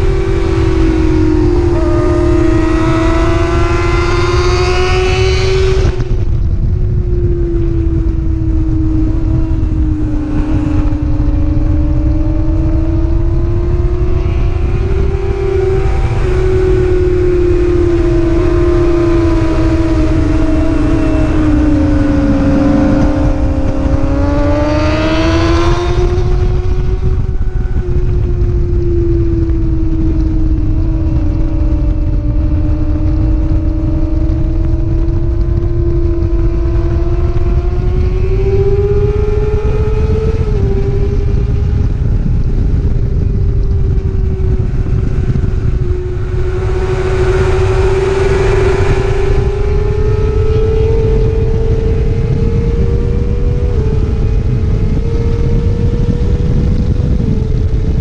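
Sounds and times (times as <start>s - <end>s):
racing motorcycle engine: 0.0s - 58.0s
second higher engine note: 0.6s - 4.5s, 15.6s - 24.0s.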